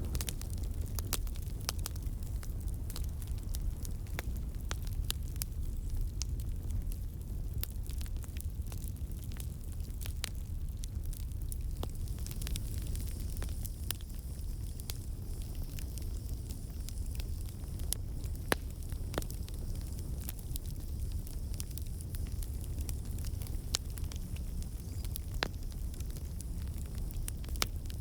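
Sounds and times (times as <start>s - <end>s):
campfire flames rumbling: 0.0s - 28.0s
fire crackling and popping: 0.0s - 28.0s.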